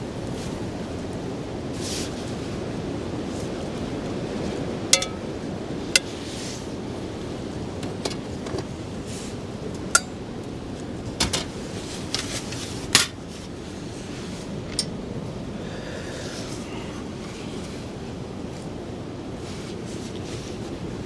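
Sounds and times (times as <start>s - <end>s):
metal cookware clinking: 4.9s - 5.3s, 10.0s - 10.2s.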